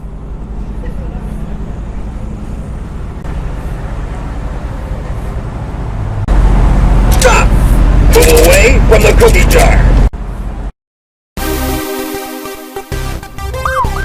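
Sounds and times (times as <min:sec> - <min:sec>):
vehicle engine droning: 0:00.0 - 0:10.7.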